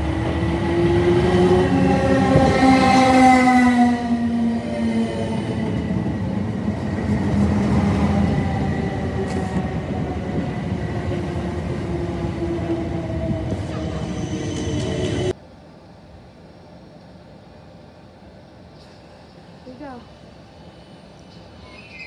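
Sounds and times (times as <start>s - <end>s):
wheels rumbling on rail: 0.0s - 15.4s.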